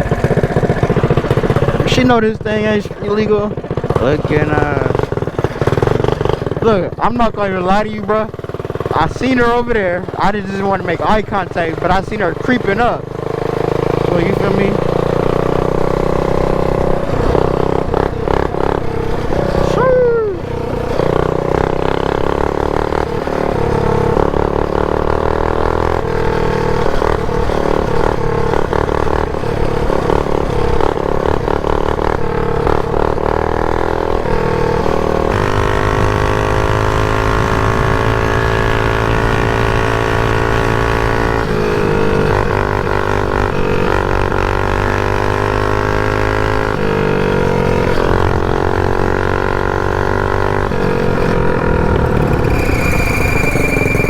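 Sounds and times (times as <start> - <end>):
small motorbike engine revving: 0.0 - 54.0
short falling whine: 51.9 - 54.0.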